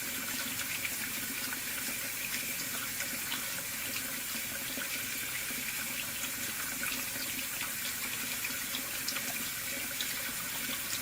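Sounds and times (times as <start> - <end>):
faucet water splashing into sink: 0.0 - 11.0.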